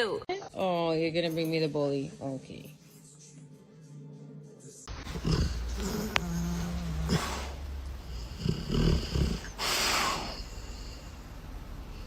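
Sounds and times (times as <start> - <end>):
dog making low rumbling noises: 4.9 - 10.4.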